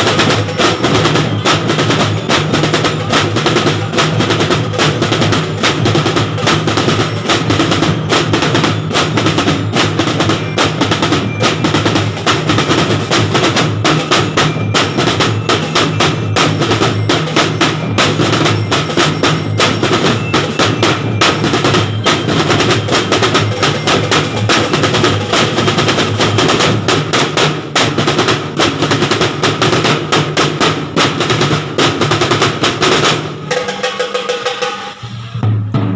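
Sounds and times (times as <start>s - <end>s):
snare drum rolls: 0.0s - 35.9s
low drum tones: 33.4s - 35.9s.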